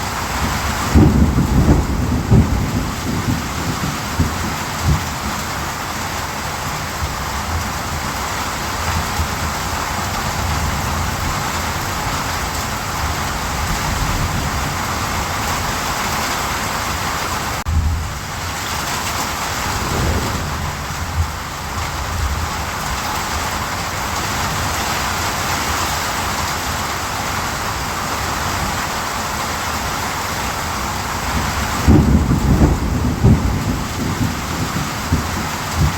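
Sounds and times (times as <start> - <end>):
steady rain hissing: 19.2 - 35.9
low thunder rumbling: 19.3 - 22.7.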